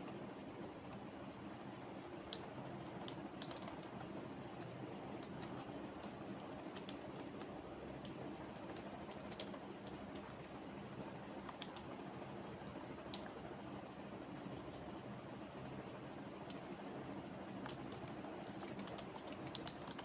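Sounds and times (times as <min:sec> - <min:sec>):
low background hum: 0:00.0 - 0:20.0
keyboard typing: 0:02.2 - 0:10.7, 0:11.4 - 0:13.4, 0:14.5 - 0:14.9, 0:17.6 - 0:20.0.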